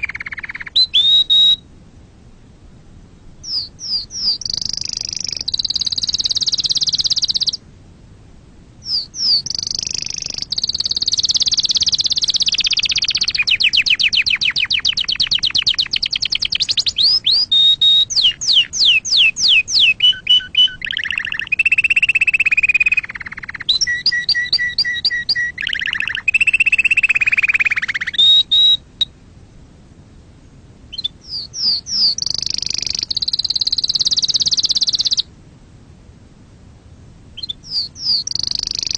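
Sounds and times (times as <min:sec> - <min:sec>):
canary singing trills: 0:00.0 - 0:01.7, 0:03.2 - 0:07.6, 0:08.8 - 0:29.1, 0:30.9 - 0:35.3, 0:37.4 - 0:38.9.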